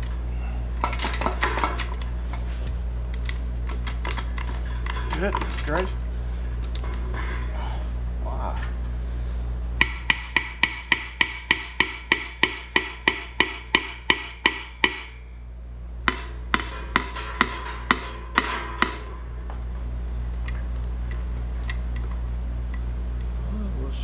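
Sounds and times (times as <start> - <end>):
steady low hum: 0.0 - 24.0
hammer tapping on metal: 9.8 - 15.2, 16.1 - 19.2.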